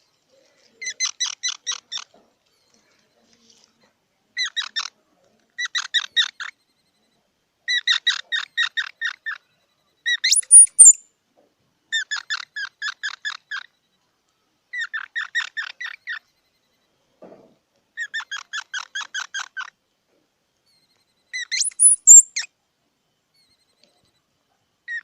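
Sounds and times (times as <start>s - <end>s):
squirrel chipping calls: 10.1s - 11.0s, 21.4s - 22.5s
squirrel squealing: 10.1s - 11.0s, 21.4s - 22.5s.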